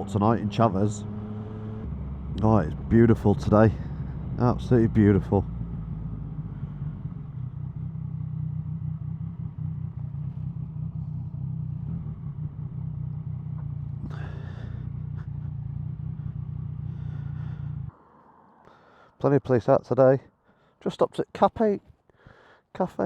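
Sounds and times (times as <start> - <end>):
motorcycle engine and wind rumble: 0.0 - 17.9.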